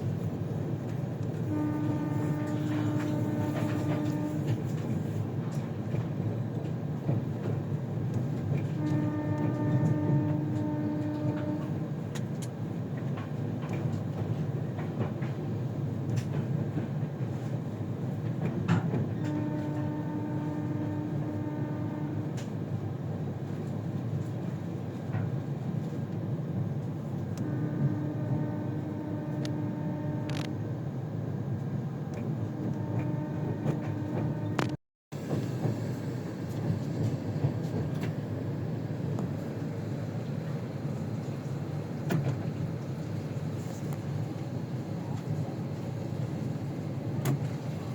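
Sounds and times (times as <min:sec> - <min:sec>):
rail clicks: 0:00.0 - 0:30.8, 0:31.5 - 0:47.9
train rumbling on rails: 0:00.0 - 0:47.9
train horn blasts: 0:01.2 - 0:05.2, 0:08.5 - 0:11.9, 0:19.0 - 0:22.8, 0:27.3 - 0:30.7, 0:32.1 - 0:34.8.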